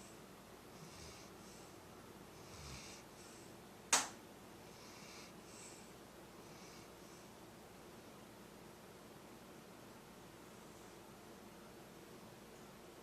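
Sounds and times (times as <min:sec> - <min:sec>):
soft hissing breathing: 0:00.0 - 0:03.6, 0:04.6 - 0:07.5
sharp click: 0:03.9 - 0:04.2.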